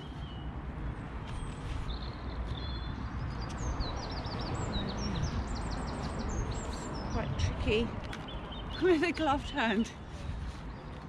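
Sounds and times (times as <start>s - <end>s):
small songbird singing: 1.9s - 9.9s.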